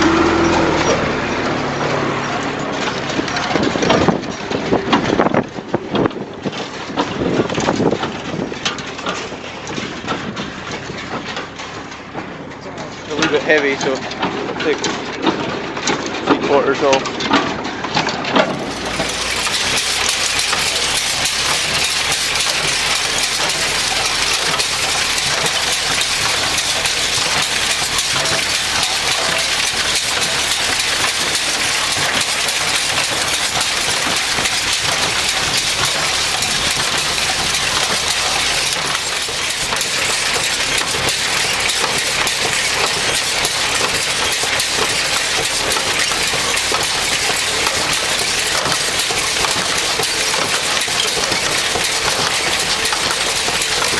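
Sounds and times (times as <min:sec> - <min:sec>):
tractor engine running: 0:18.4 - 0:53.9.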